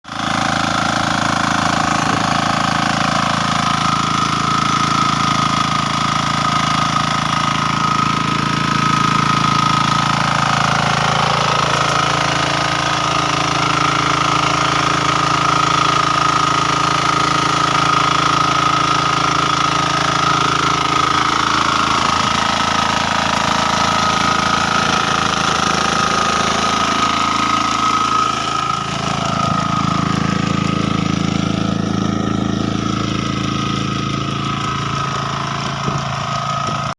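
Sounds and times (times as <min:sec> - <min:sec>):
diesel engine running: 0:00.0 - 0:36.9
high whine of rotary tiller: 0:00.0 - 0:36.9.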